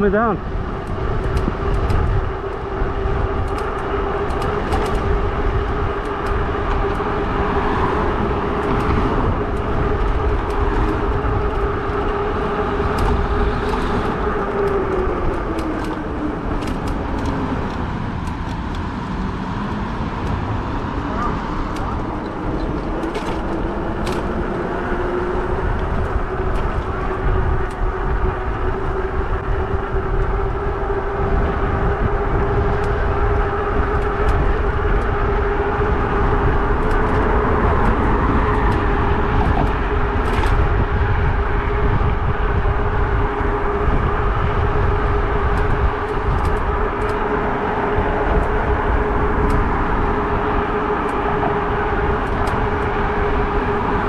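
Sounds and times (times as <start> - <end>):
wind buffeting microphone: 0.0 - 54.0
electric bike motor whine: 0.4 - 54.0.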